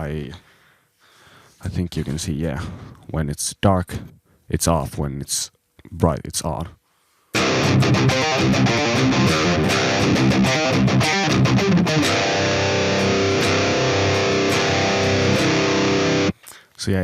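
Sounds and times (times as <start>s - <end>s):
distorted electric guitar: 7.4s - 16.4s.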